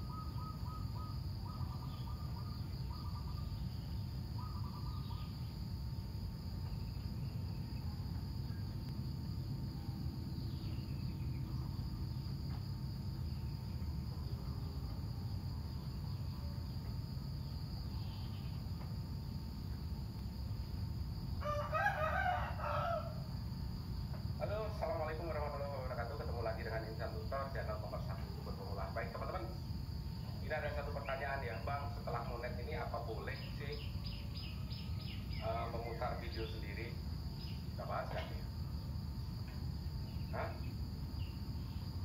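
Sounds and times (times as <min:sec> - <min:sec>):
faint chirps: 0:00.0 - 0:20.6, 0:30.2 - 0:38.6
high insect drone: 0:00.0 - 0:42.0
rooster crowing: 0:21.4 - 0:23.4.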